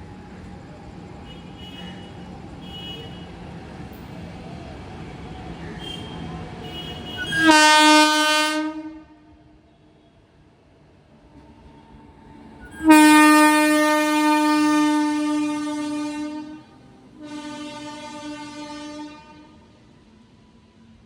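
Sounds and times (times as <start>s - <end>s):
train running noise: 0.0s - 9.1s, 9.7s - 21.0s
locomotive horn blast: 5.8s - 9.4s, 12.7s - 19.6s.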